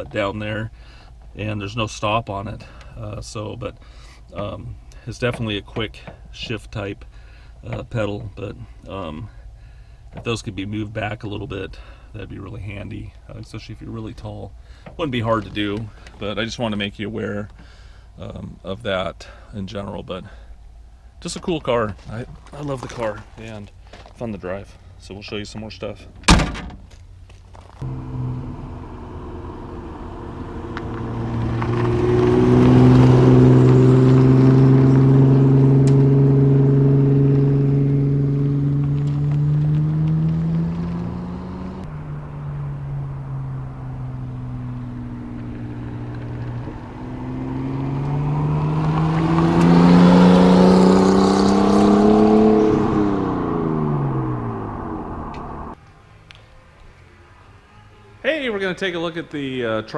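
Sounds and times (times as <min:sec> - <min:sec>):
car engine accelerating past: 0:27.8 - 0:55.8.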